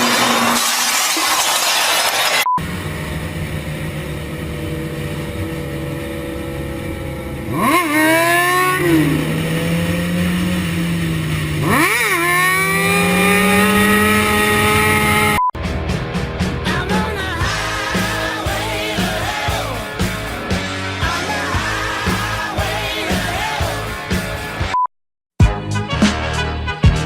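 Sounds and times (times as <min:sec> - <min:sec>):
motorcycle engine revving: 0:02.3 - 0:15.5, 0:16.4 - 0:24.6.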